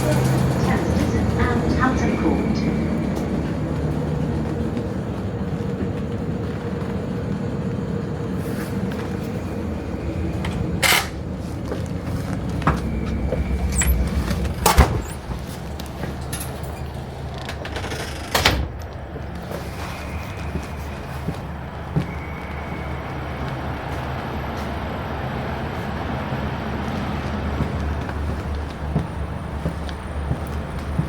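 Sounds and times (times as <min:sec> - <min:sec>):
electric train rumbling: 0:00.0 - 0:31.0
sharp clunks and rattles: 0:12.3 - 0:19.6.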